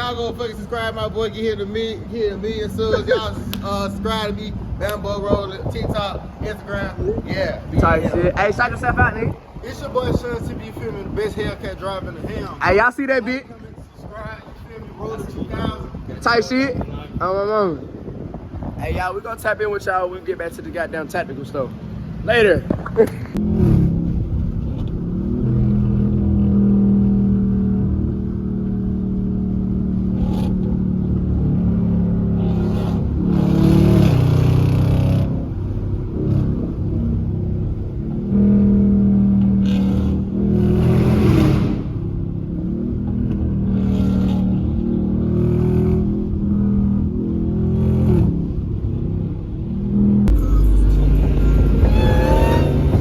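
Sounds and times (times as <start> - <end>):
car engine accelerating: 23.4 - 53.0.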